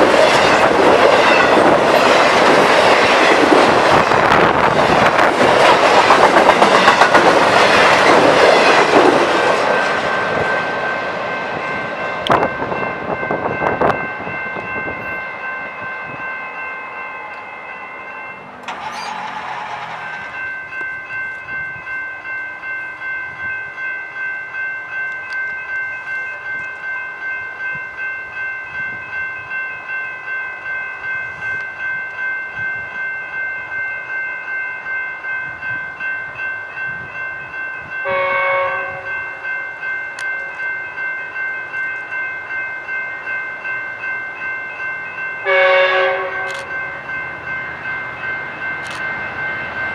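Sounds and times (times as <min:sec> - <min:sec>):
train wheel clicks: 0:00.0 - 0:10.1, 0:18.6 - 0:21.5, 0:46.4 - 0:46.8, 0:48.8 - 0:49.3
crossing warning bell ringing: 0:00.0 - 0:49.9
train passing: 0:00.0 - 0:49.9.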